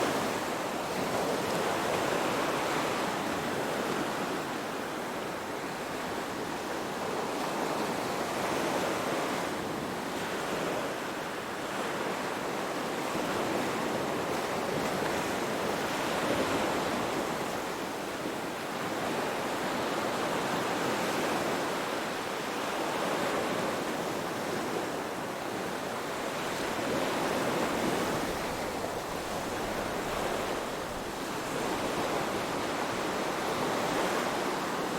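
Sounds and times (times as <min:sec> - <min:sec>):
waves washing in: 0:15.0 - 0:34.9.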